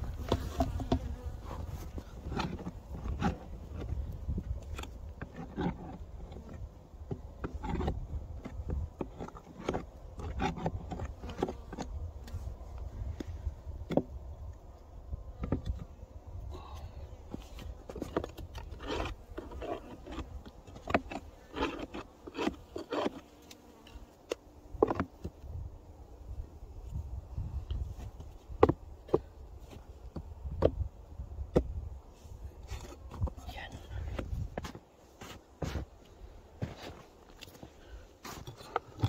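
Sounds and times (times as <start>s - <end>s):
scraping and knocking on wooden hives: 0.0s - 39.0s.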